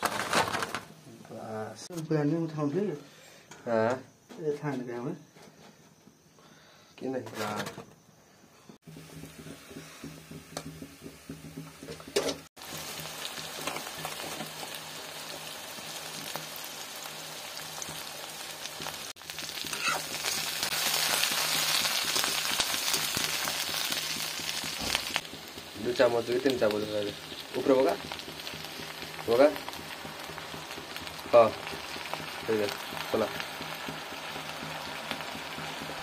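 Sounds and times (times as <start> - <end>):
vegetables sizzling in hot oil: 8.8 - 36.0.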